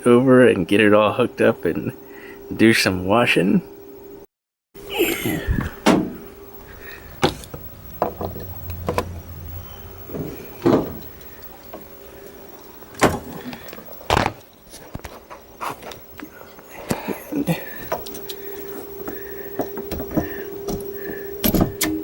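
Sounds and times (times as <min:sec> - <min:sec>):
faint steady hum: 0:00.0 - 0:22.0
dishwasher knocks and clunks: 0:05.5 - 0:06.3, 0:10.1 - 0:11.1, 0:13.0 - 0:13.4.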